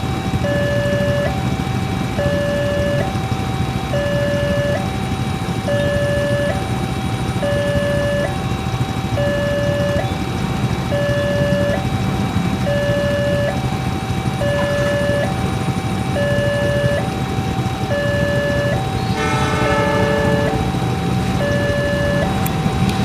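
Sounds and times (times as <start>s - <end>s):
two-tone electronic crossing alarm: 0.0s - 23.0s
horn toot: 19.1s - 21.0s.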